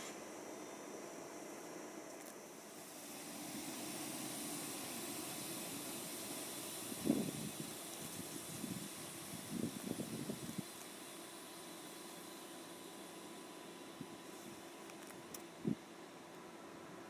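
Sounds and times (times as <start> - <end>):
train rushing hiss: 0.0 - 14.9.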